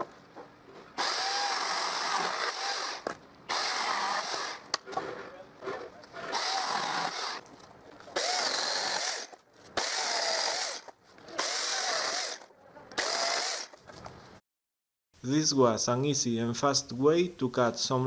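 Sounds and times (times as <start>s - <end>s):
chainsaw cutting branches: 1.0s - 4.7s, 6.2s - 7.5s, 8.2s - 13.8s.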